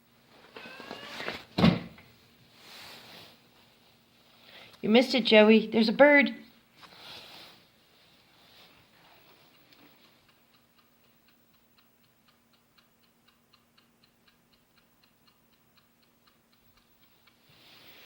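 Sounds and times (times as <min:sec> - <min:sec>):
faint steady hum: 0:00.0 - 0:18.0
fast even ticking: 0:10.1 - 0:17.4.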